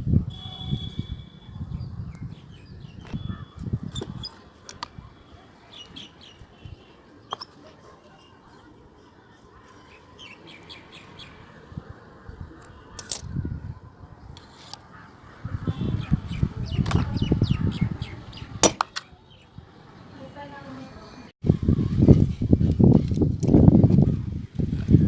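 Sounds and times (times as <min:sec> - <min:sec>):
small birds chirping: 0:00.5 - 0:13.0, 0:14.2 - 0:20.4.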